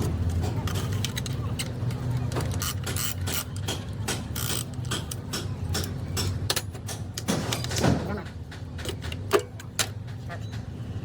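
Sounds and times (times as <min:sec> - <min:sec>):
hand tools clicking on metal: 0:00.3 - 0:07.3.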